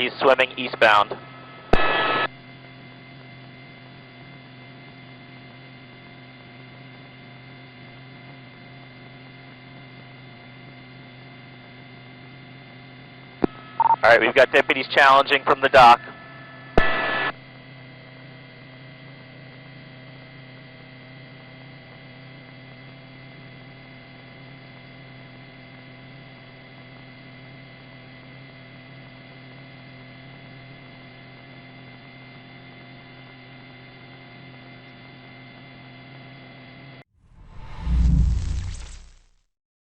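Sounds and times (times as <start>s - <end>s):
electrical hum with high whine: 0.0s - 39.2s.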